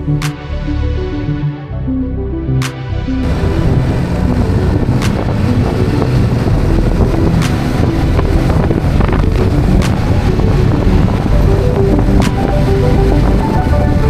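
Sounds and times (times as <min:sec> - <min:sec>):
motorcycle engine rumble: 0:03.2 - 0:14.0
wind buffeting microphone: 0:03.2 - 0:14.0
sharp clicks: 0:05.0 - 0:05.3.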